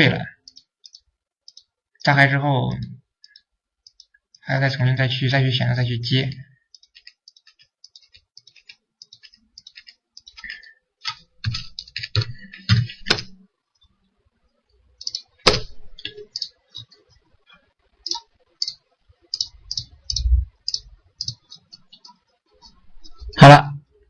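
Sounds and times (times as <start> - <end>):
mouse and keyboard clicking: 0.4 - 2.1, 3.2 - 4.4, 6.7 - 13.3, 15.0 - 15.4, 16.0 - 17.2, 18.0 - 23.2.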